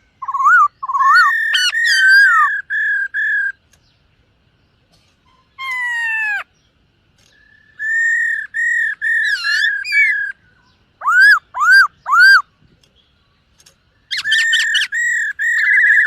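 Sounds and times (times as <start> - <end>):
bird singing whistled phrases: 0.2 - 3.6, 7.4 - 12.5, 14.1 - 16.0.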